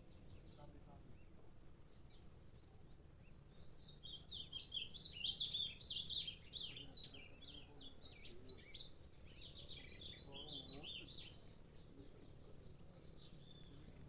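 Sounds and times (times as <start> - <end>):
finch singing high chirps: 3.3 - 11.9.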